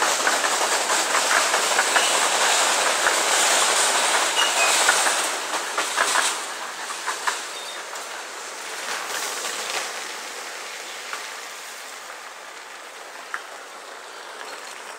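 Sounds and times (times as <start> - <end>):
train wheels rushing on rails: 0.0 - 14.9.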